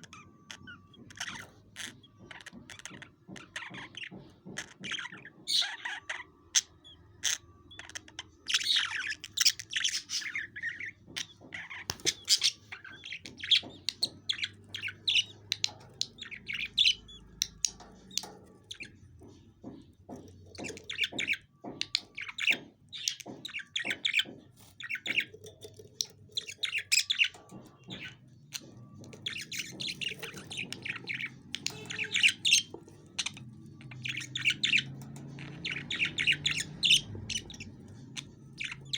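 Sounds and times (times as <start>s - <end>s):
budgerigars chirping and squawking: 0.0s - 38.9s.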